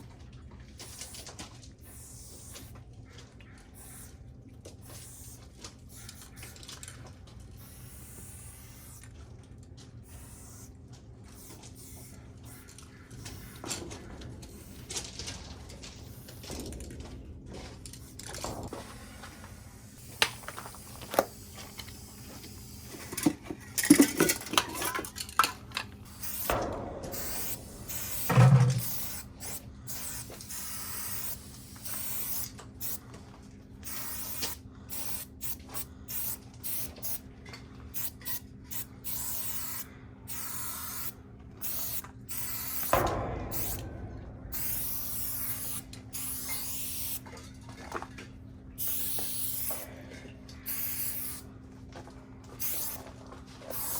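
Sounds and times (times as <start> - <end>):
spray paint can hissing: 1.8 - 2.7, 3.8 - 4.1, 4.9 - 6.6, 7.6 - 9.0, 10.0 - 10.7, 11.4 - 12.6, 13.2 - 13.6, 18.6 - 24.1, 26.0 - 33.0, 33.8 - 37.2, 38.0 - 43.8, 44.5 - 47.2, 48.8 - 49.9, 50.7 - 51.4, 52.6 - 53.0, 53.6 - 53.9
knocks and clatters: 22.9 - 29.6, 42.8 - 46.6.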